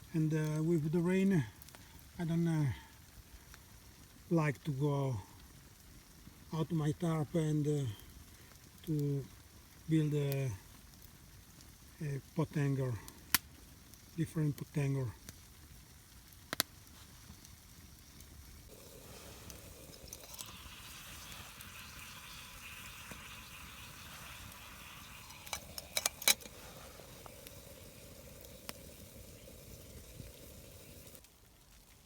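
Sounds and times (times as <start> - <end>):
teapot hissing and sizzling: 4.4 - 13.5, 18.7 - 32.0.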